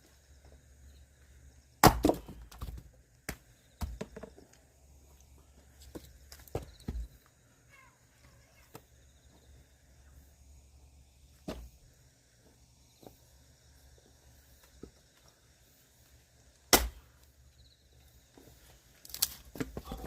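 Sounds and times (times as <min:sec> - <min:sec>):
axe splitting firewood: 0:01.8 - 0:04.4, 0:16.7 - 0:17.2, 0:19.0 - 0:20.0.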